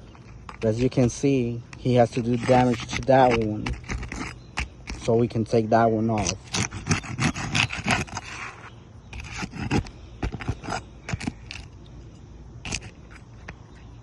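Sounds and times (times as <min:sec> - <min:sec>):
roof shingles scraping loose: 0:06.1 - 0:11.7.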